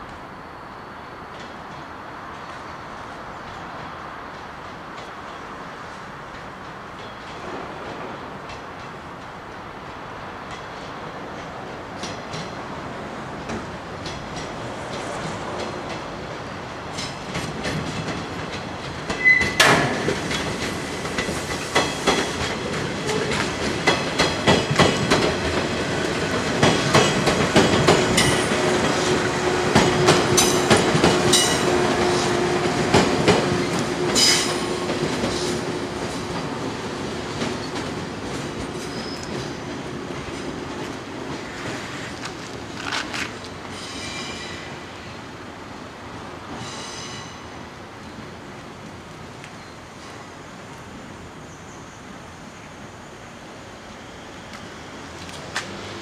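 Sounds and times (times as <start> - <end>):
train wheels clacking over rail joints: 13.4 - 44.2.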